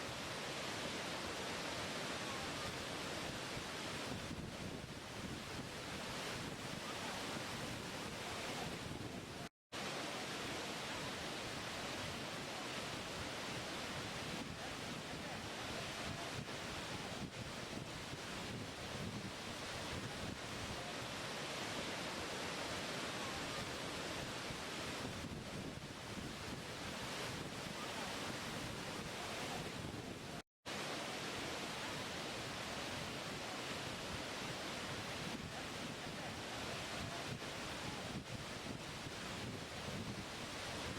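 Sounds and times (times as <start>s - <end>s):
waterfall rushing: 0.0s - 4.1s, 20.7s - 25.0s
falling water rushing: 0.0s - 4.2s, 20.7s - 25.0s, 30.7s - 39.3s.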